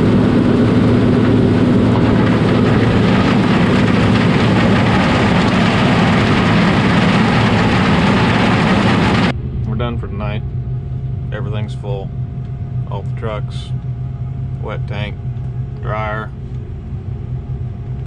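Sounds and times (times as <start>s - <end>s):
farm machinery running: 0.0s - 9.8s
constant low hum: 0.0s - 18.0s.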